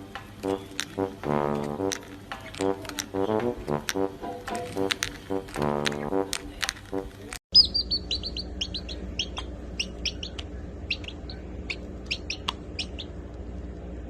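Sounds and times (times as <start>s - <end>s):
small birds chirping: 7.5s - 13.2s.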